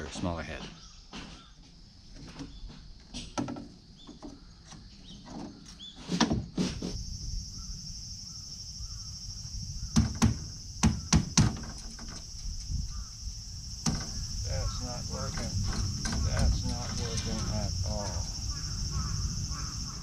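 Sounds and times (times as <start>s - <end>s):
high insect shrilling: 6.7s - 11.4s, 12.1s - 20.0s.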